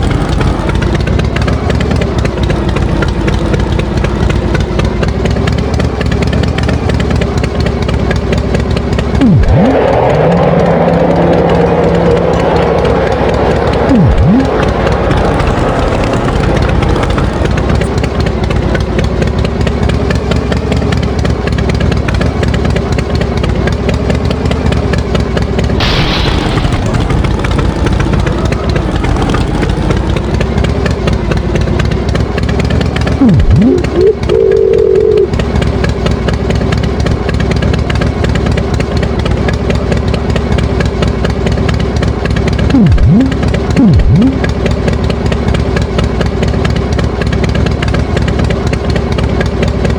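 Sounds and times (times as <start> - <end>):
tractor engine running: 0.0 - 49.9
short higher tone: 33.2 - 35.3.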